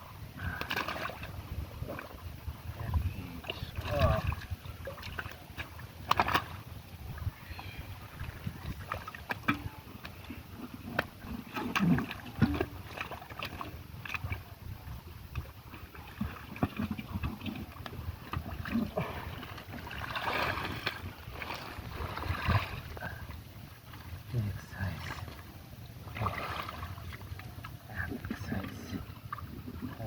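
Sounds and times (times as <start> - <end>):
water splashing and sloshing: 0.0 - 30.0.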